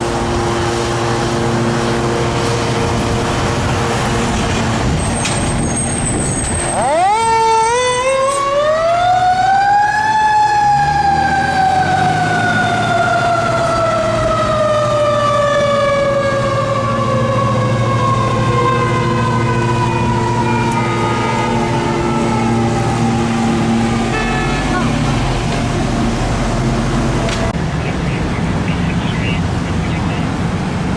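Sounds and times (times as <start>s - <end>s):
fire engine idling: 27.0s - 30.6s.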